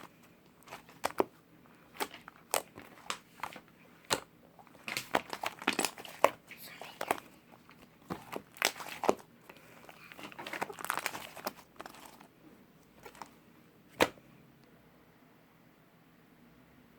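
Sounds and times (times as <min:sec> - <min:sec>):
slime crackling and popping: 0:00.6 - 0:01.3, 0:01.9 - 0:03.5, 0:04.1 - 0:12.2.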